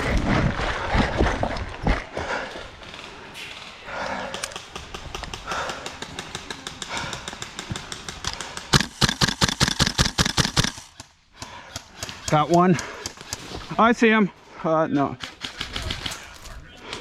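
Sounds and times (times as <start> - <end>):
airsoft gun rapid firing: 4.5 - 13.5, 15.2 - 16.2.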